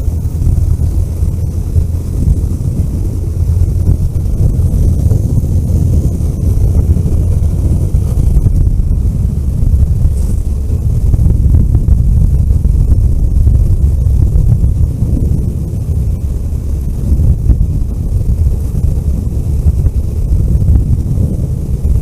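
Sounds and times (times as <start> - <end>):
vehicle driving rumble: 0.0 - 22.0.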